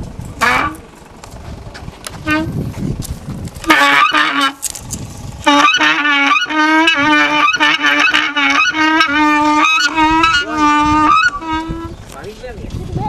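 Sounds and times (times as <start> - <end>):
reedy wind instrument melody: 0.4 - 0.9, 2.2 - 2.6, 3.6 - 4.7, 5.4 - 12.0
low drone note: 0.4 - 1.2, 3.6 - 12.1.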